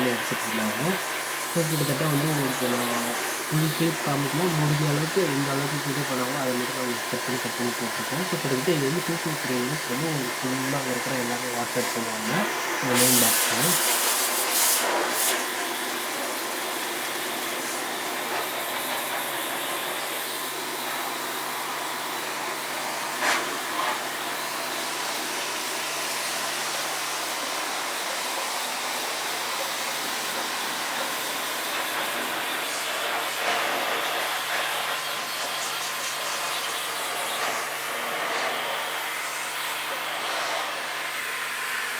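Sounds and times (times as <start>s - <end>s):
water jet spraying: 0.0s - 19.0s.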